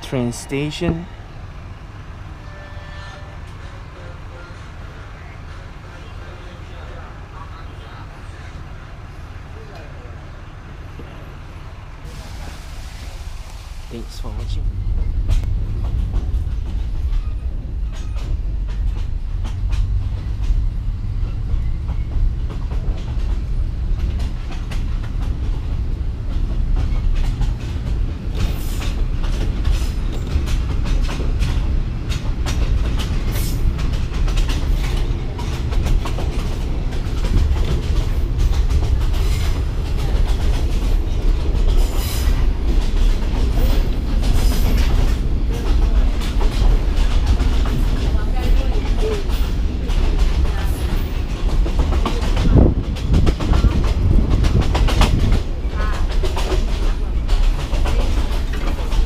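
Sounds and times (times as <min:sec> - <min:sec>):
train rumbling on rails: 0:00.0 - 0:59.0
wheels clattering and knocking: 0:15.1 - 0:59.0.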